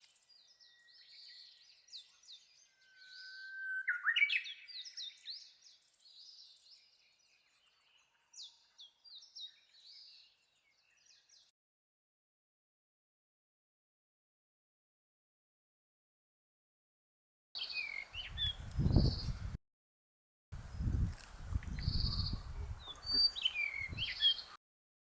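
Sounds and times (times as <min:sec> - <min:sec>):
bird song whistle and flourish: 0:00.0 - 0:11.5, 0:17.6 - 0:19.6, 0:20.7 - 0:24.6
birds chirping and warbling: 0:00.0 - 0:11.5, 0:17.6 - 0:19.6, 0:20.6 - 0:24.6.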